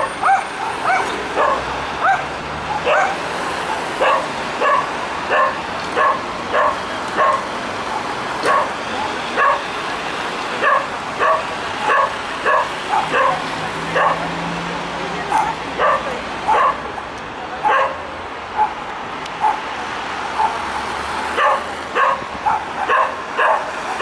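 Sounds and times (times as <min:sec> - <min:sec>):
dog barking: 0:00.0 - 0:03.2, 0:04.0 - 0:07.4, 0:08.4 - 0:08.7, 0:09.4 - 0:09.6, 0:10.6 - 0:14.3, 0:15.3 - 0:16.9, 0:17.6 - 0:18.8, 0:19.4 - 0:19.6, 0:20.4 - 0:20.6, 0:21.4 - 0:23.7.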